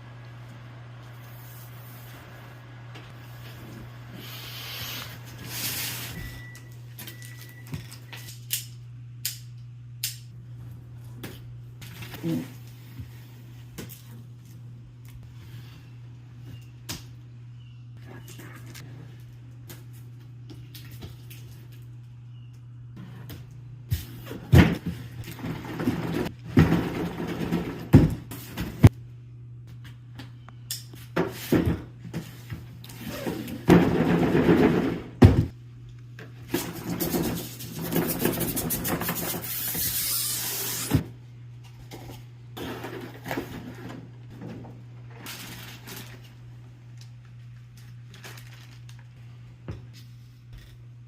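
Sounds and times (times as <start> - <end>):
steady low hum: 0.0 - 51.0
packaging rustling and scraping: 45.2 - 46.4, 47.8 - 49.2.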